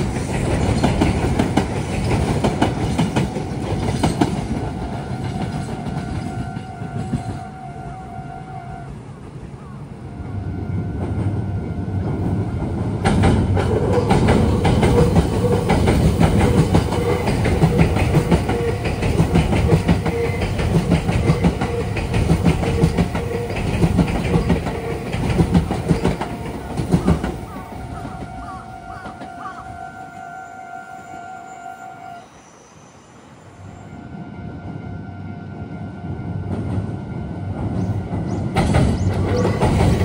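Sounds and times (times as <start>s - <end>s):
train wheels clattering: 0.0s - 7.5s, 12.2s - 29.6s, 37.5s - 40.0s.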